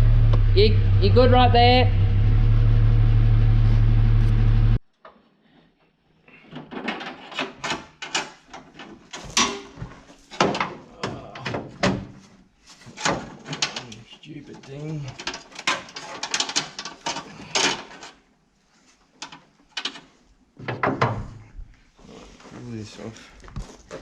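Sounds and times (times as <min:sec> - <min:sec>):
vehicle engine running: 0:00.0 - 0:04.8
irregular clicks and knocks: 0:06.5 - 0:12.2, 0:12.9 - 0:18.2, 0:19.2 - 0:21.4.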